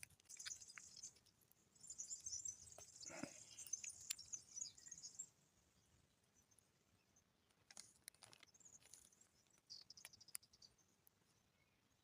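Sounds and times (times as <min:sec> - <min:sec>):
small clicks: 0:00.0 - 0:01.4, 0:03.6 - 0:04.4, 0:07.5 - 0:11.2
faint high-pitched chirping: 0:00.0 - 0:12.0.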